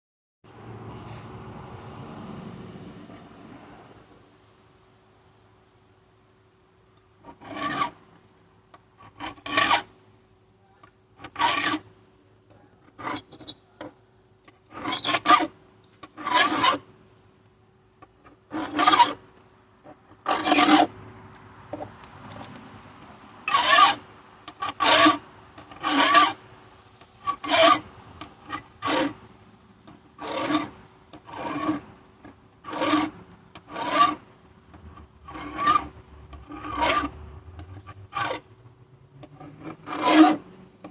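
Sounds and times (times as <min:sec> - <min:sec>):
hand file rasping on chain: 0:07.2 - 0:08.0, 0:09.0 - 0:09.9, 0:11.2 - 0:11.8, 0:12.9 - 0:13.6, 0:14.7 - 0:15.5, 0:16.2 - 0:16.8, 0:18.5 - 0:19.2, 0:20.2 - 0:20.9, 0:23.5 - 0:24.0, 0:24.6 - 0:26.4, 0:27.2 - 0:29.2, 0:30.2 - 0:31.8, 0:32.6 - 0:34.2, 0:35.0 - 0:38.5, 0:39.4 - 0:40.9.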